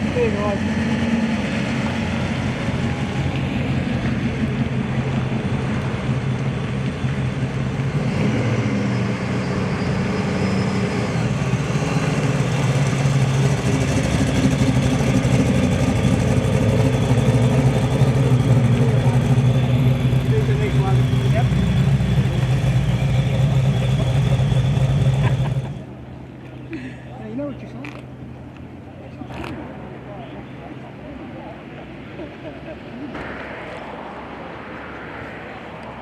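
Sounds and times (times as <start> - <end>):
car engine running at low revs: 12.1 - 25.9.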